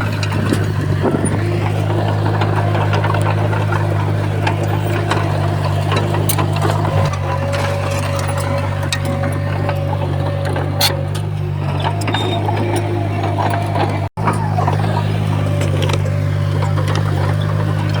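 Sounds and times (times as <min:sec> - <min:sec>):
bulldozer diesel engine running: 0:00.0 - 0:18.0
sharp clicks and clanks: 0:00.0 - 0:18.0.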